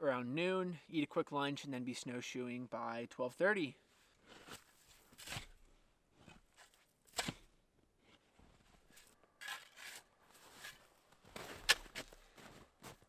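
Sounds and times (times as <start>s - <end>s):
shovel crunching and scraping snow: 4.0s - 13.0s.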